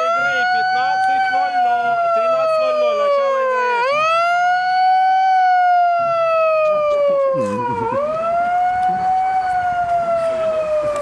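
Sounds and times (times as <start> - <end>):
faint voices: 0.0 - 5.0, 5.9 - 11.0
wailing siren: 0.0 - 11.0.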